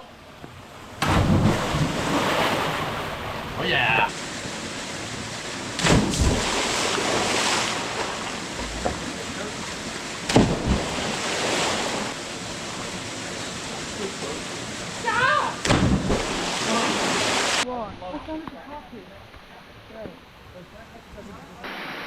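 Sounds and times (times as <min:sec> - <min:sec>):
water splashing from swimmers: 0:01.0 - 0:17.6.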